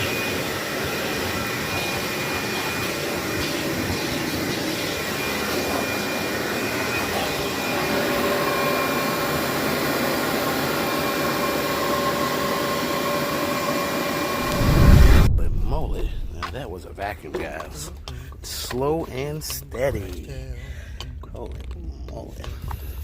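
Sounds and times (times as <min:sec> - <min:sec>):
vacuum cleaner on carpet: 0:00.0 - 0:14.6
low whine: 0:04.3 - 0:16.8.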